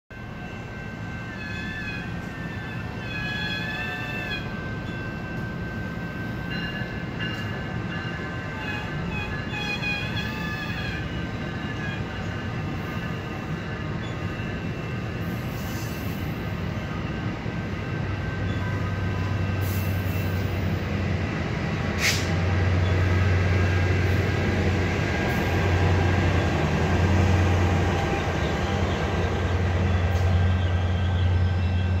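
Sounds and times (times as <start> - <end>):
locomotive engine drone: 0.1 - 32.0
train wheels rolling on rails: 0.1 - 32.0
high wheel squeal: 1.2 - 5.0, 8.5 - 13.2.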